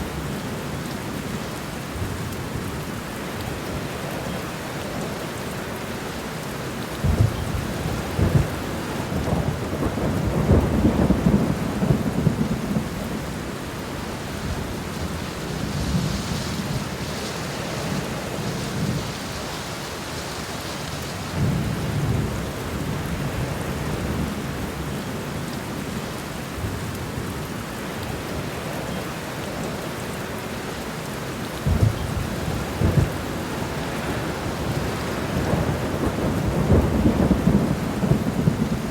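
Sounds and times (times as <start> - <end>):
steady rain: 0.0 - 38.9
thunder rumbling: 7.0 - 13.4, 31.6 - 38.9.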